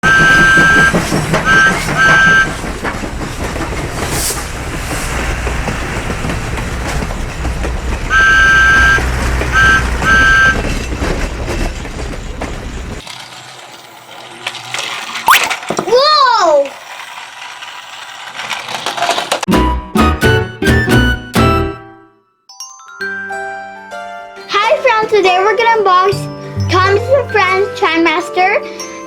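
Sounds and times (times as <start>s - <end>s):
train horn blasts: 0.0s - 2.6s, 8.1s - 10.8s.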